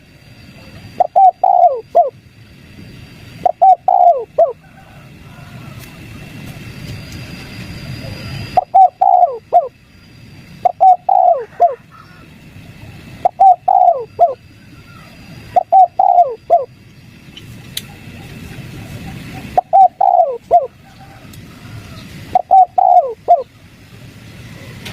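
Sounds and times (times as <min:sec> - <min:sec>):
dove cooing: 0:00.6 - 0:02.2, 0:03.4 - 0:06.3, 0:07.8 - 0:09.8, 0:10.6 - 0:16.7, 0:17.9 - 0:24.9.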